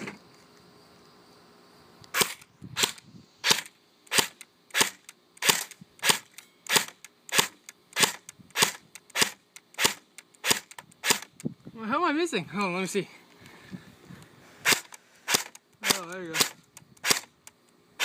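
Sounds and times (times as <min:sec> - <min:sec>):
airsoft rifle single shots: 0:02.1 - 0:11.3, 0:14.6 - 0:17.3.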